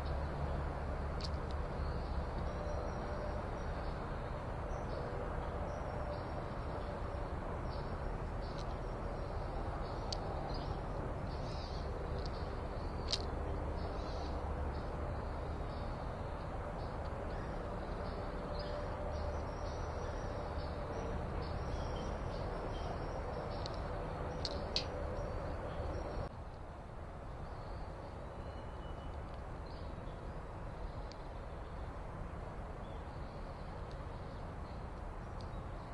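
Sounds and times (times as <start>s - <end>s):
small birds chirping: 1.2s - 26.3s.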